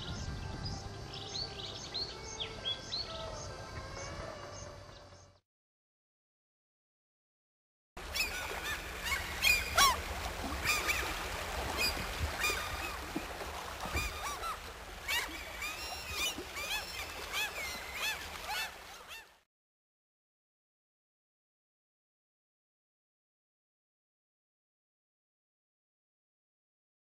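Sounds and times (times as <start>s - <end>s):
many birds calling: 8.0s - 19.4s.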